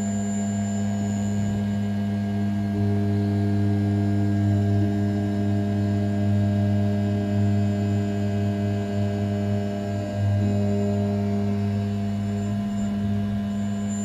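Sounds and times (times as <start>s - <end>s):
milling machine spindle humming: 7.0s - 14.0s.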